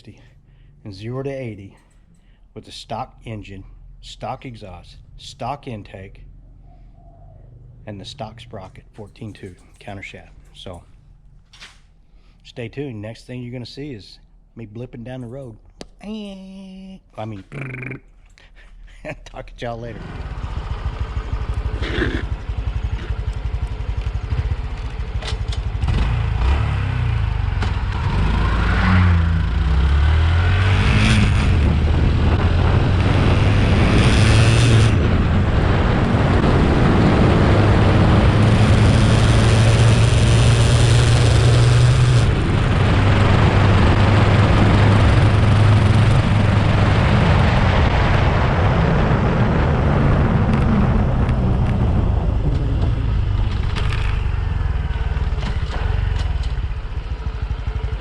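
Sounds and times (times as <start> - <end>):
motorcycle engine accelerating: 19.8 - 58.0
wind noise: 30.2 - 55.7.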